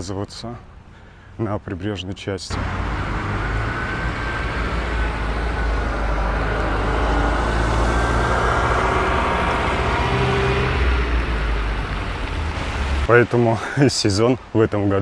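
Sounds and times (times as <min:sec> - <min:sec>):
road traffic rumble: 0:02.5 - 0:13.9.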